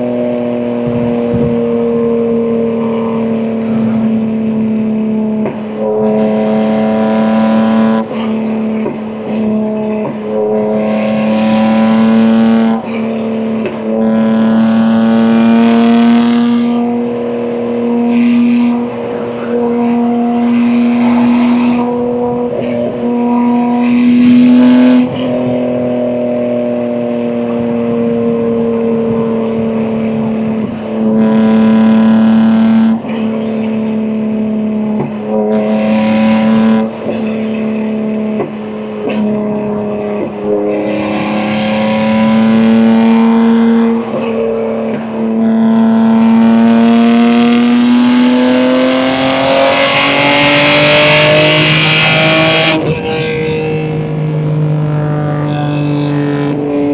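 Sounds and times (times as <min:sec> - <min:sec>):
car engine accelerating: 0:00.0 - 0:56.9.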